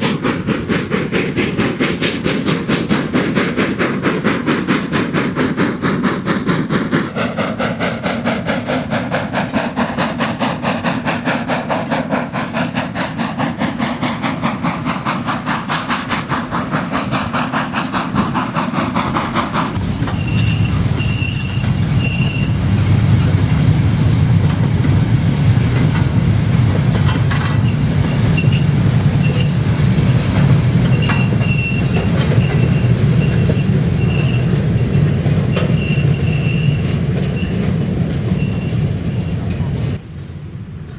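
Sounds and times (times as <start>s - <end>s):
steam locomotive exhaust beats: 0.0s - 40.9s
wheels rumbling on track: 0.0s - 40.9s
high-pitched wheel squeals: 19.8s - 22.7s, 25.7s - 30.0s, 30.8s - 40.0s.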